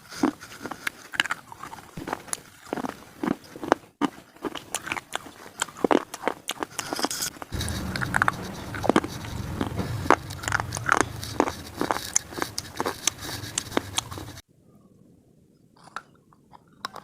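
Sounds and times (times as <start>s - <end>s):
steady low hum: 7.5s - 14.4s.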